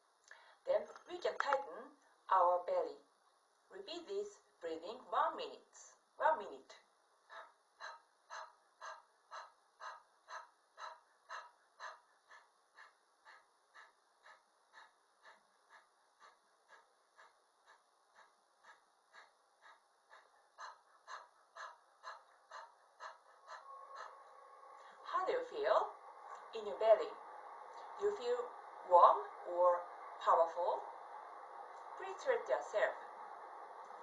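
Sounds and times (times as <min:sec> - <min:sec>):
woman panting: 0:07.3 - 0:27.0.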